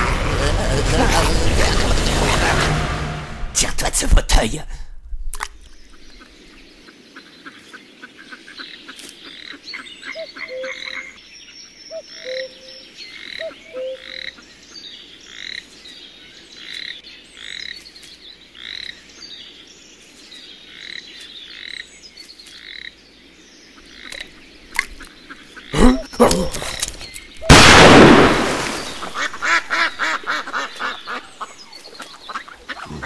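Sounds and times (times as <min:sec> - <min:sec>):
frogs trilling and croaking: 0:05.8 - 0:19.7, 0:20.6 - 0:27.0.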